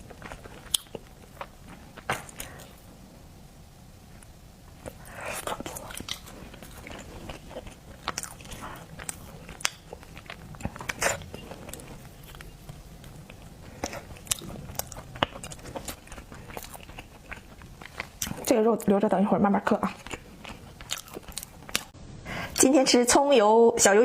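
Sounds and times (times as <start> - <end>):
crunchy bites of seafood: 0.0 - 2.8, 4.8 - 18.5, 19.9 - 21.9
wet chewing: 0.0 - 2.8, 4.8 - 18.9, 19.6 - 22.0.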